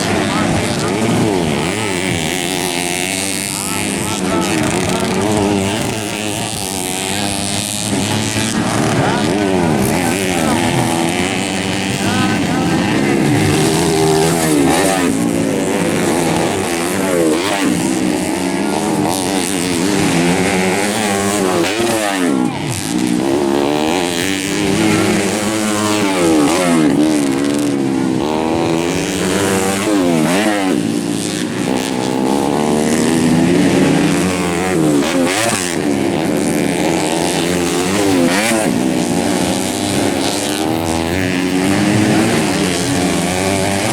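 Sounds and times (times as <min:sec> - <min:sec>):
motorcycle engines revving: 0:00.0 - 0:43.9.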